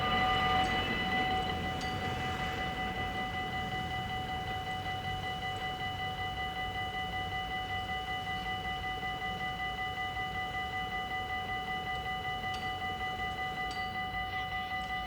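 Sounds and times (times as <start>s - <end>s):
level crossing bell ringing: 0.0s - 6.0s.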